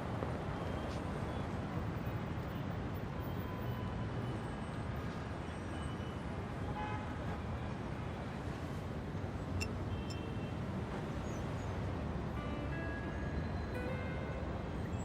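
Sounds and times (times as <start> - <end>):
road traffic rumble: 7.4 - 12.7.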